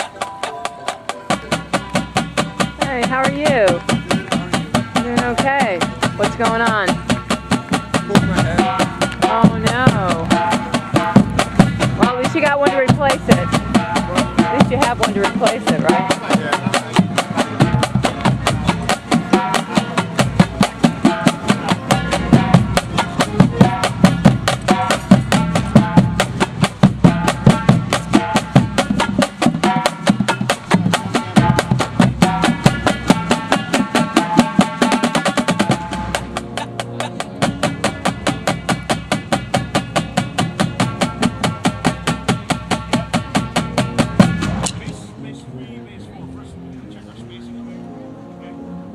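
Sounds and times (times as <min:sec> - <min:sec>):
drumline playing: 0:00.0 - 0:47.4
brass playing: 0:00.0 - 0:48.9.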